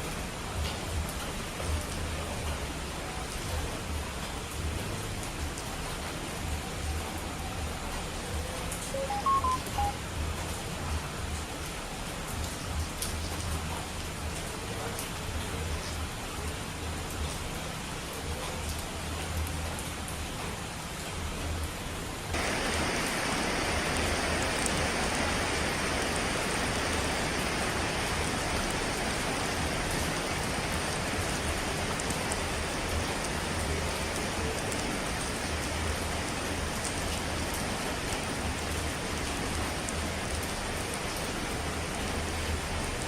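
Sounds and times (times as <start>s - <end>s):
hiss of falling water: 22.3s - 42.6s.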